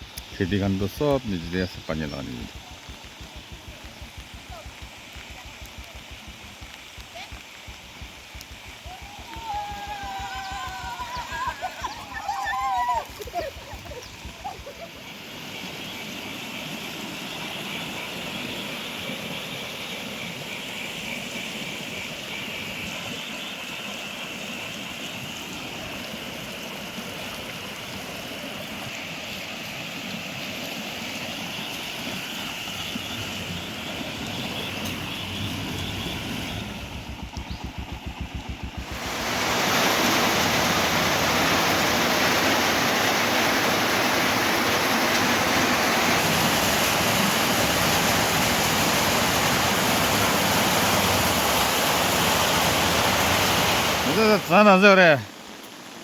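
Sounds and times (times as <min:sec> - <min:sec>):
river rushing: 0:00.0 - 0:56.0
brief fluttering rumble: 0:32.9 - 0:39.4.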